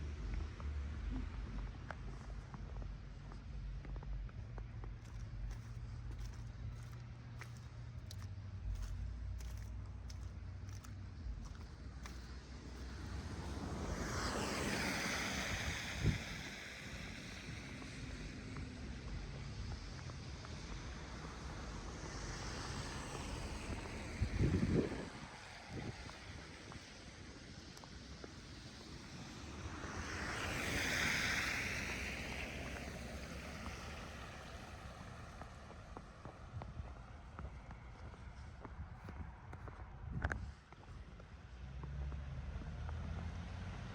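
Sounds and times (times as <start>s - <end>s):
faint footsteps in snow: 0.2s - 13.1s, 32.6s - 43.2s
vehicle tyre hiss on snowy road: 5.0s - 36.4s.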